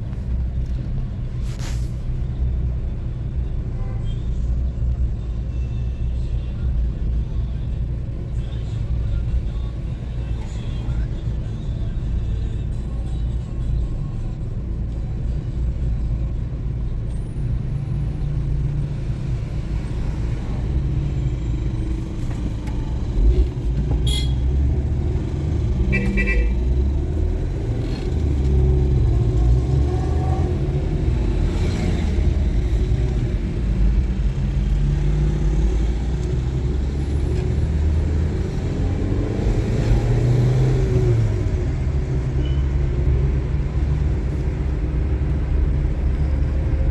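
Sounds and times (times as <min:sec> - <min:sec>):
vehicle engine and road rumble: 0:00.0 - 0:46.9
short horn toot: 0:24.0 - 0:24.4.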